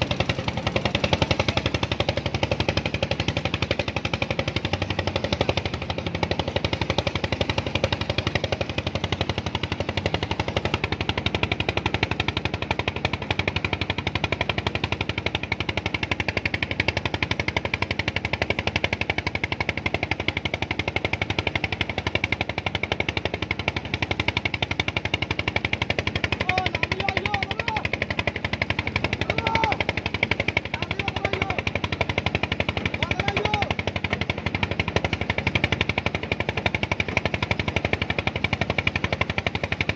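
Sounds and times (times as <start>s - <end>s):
small engine knocking: 0.0s - 39.9s
faint voices: 29.1s - 30.0s.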